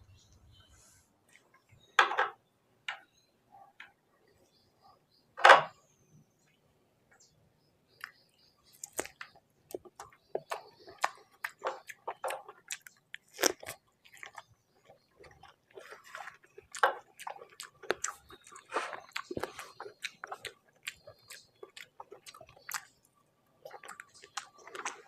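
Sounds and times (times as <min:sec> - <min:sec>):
chewing with mouth clicks: 0:08.0 - 0:25.0.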